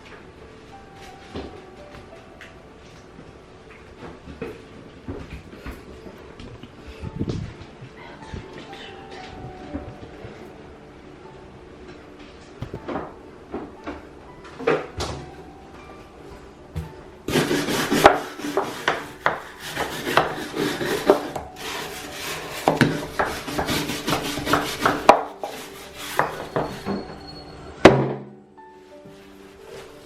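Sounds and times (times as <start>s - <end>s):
scrubbing and scraping: 17.3s - 27.0s.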